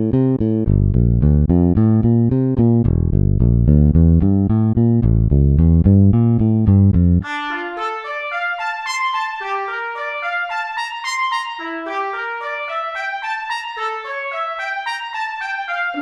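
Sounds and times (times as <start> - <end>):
trumpet melody: 7.2 - 16.0.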